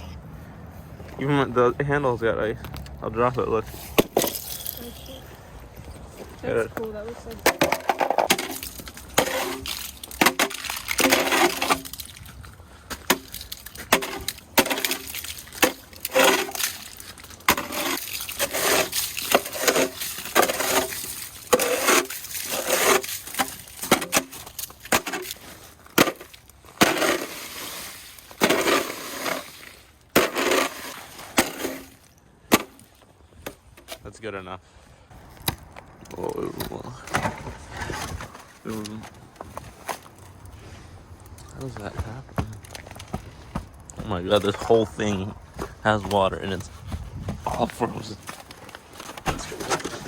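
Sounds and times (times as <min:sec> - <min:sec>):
ice pieces clinking: 0:04.2 - 0:05.2, 0:07.5 - 0:32.8
ice chipping knocks and cracks: 0:07.4 - 0:33.6.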